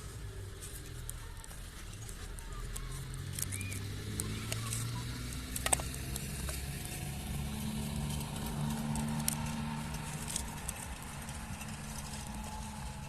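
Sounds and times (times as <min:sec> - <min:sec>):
low engine hum: 0:00.0 - 0:13.0
light clicks and ticks: 0:00.4 - 0:07.0.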